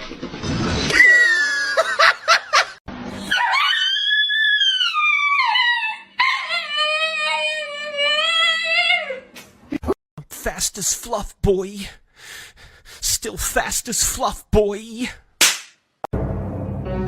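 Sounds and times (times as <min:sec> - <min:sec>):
dog howling: 0:03.3 - 0:09.2
dog yelping: 0:03.3 - 0:09.2.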